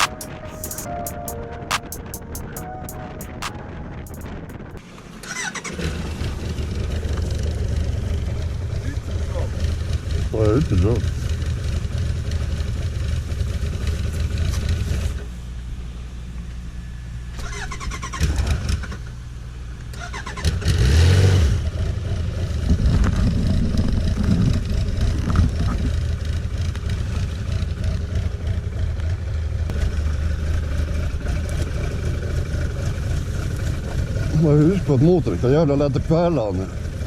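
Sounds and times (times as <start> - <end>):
motorcycle engine starting: 4.4 - 15.4, 17.3 - 37.0
motorcycle engine idling: 6.0 - 15.1, 21.6 - 37.0.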